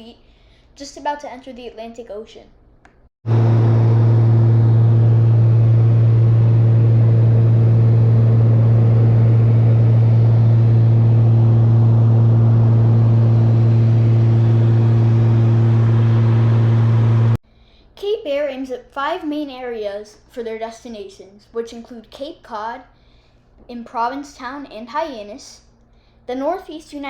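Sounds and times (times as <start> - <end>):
aircraft engines and propellers droning: 3.3 - 17.4.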